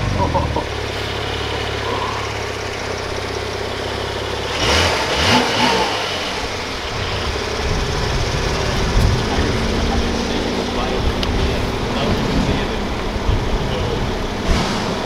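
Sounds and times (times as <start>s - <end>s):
car engine humming: 0.0s - 15.0s.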